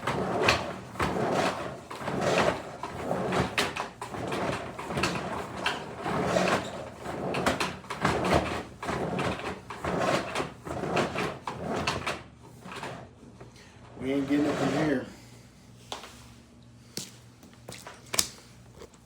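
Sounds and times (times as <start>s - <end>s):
spinning cable rattling and scraping: 0.0s - 13.0s, 14.0s - 15.0s.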